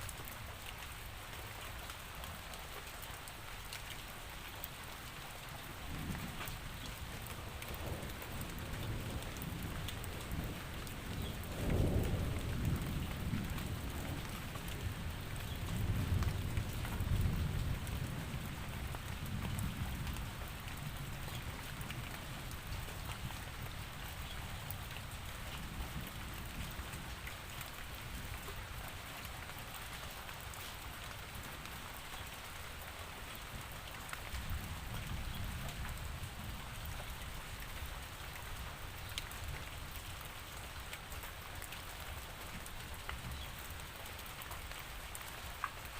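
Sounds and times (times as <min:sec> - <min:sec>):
steady rain: 0:00.0 - 0:45.9
low rolling thunder: 0:05.9 - 0:23.9.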